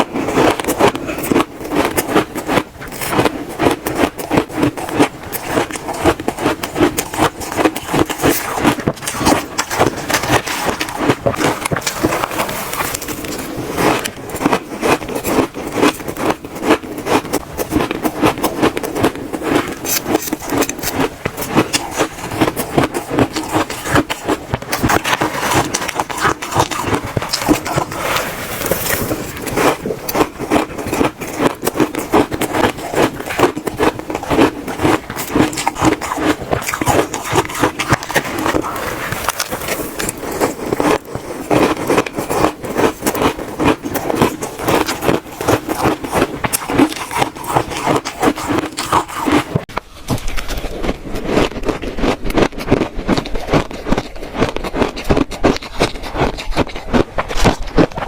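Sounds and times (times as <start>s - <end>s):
chewing crunchy ice: 0.0s - 58.0s.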